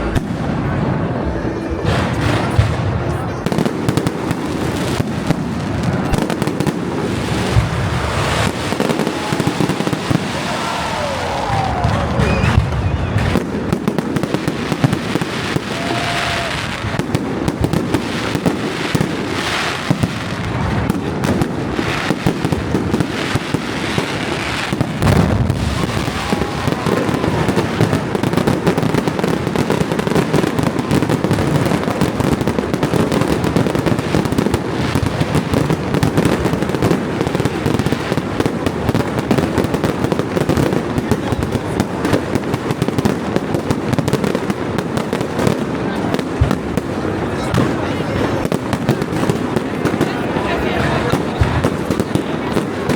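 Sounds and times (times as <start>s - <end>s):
fireworks bangs and crackles: 0.0s - 52.9s
firework whistles: 7.6s - 17.0s.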